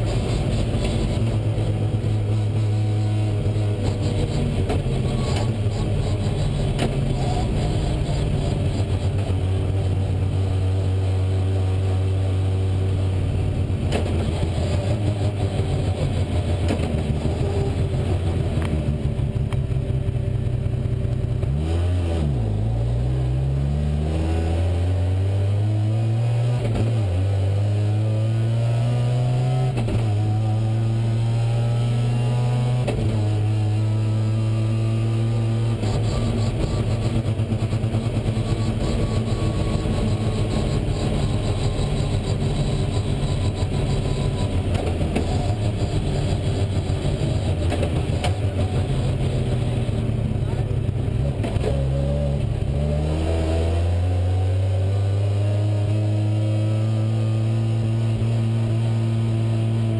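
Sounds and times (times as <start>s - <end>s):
rally car engine from inside: 0.0s - 59.9s.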